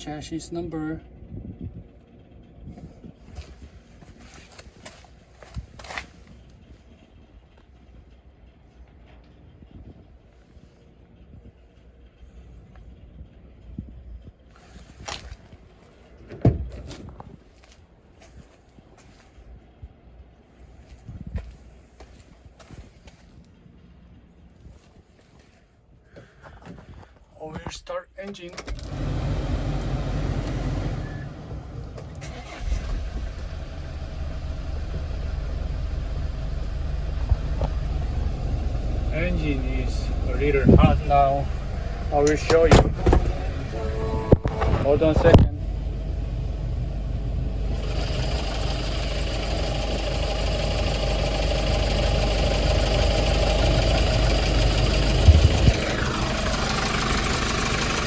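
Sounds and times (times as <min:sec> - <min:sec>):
diesel truck engine idling: 0:00.0 - 0:16.7, 0:28.8 - 0:58.0
low thumps: 0:36.1 - 0:47.0, 0:55.1 - 0:56.5.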